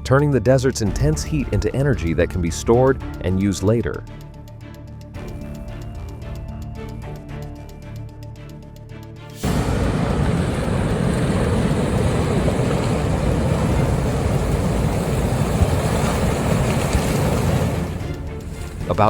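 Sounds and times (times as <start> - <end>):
river water and ice rushing: 9.4 - 19.0.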